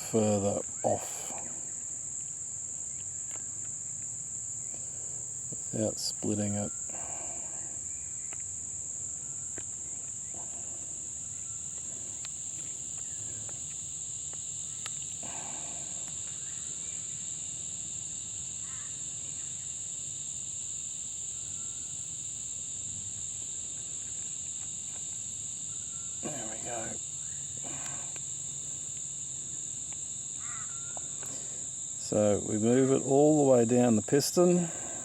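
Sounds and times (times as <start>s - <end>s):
crickets chirring: 0.0s - 35.0s.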